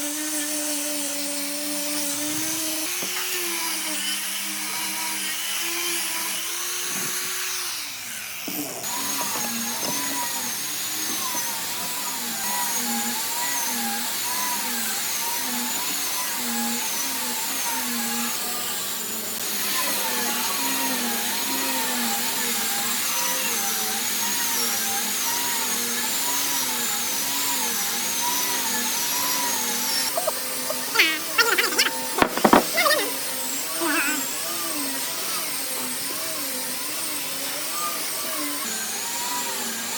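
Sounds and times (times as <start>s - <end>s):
power tool motor whining: 0.0s - 39.9s
sharp knocks and clicks: 32.2s - 33.0s.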